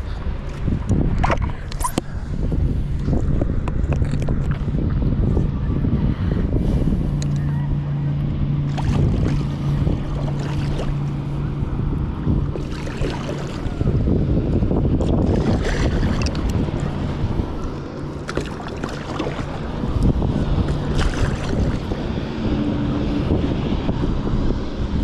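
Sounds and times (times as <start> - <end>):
wind buffeting microphone: 0.0 - 25.0
water splashes: 1.1 - 2.1, 8.5 - 23.8
waves lapping: 6.5 - 23.7.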